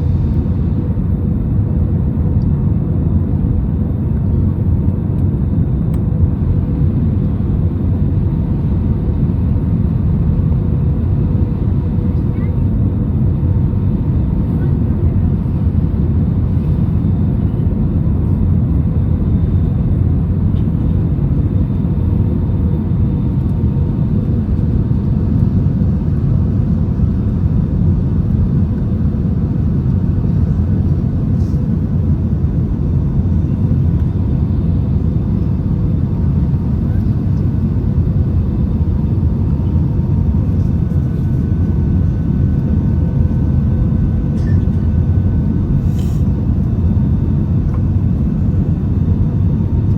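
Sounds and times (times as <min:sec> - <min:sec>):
aircraft cabin rumble: 0:00.0 - 0:49.9.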